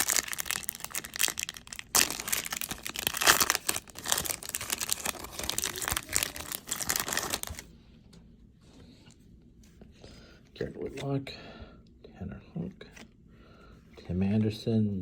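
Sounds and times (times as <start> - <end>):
foil wrapper tearing and crinkling: 0.0 - 7.7.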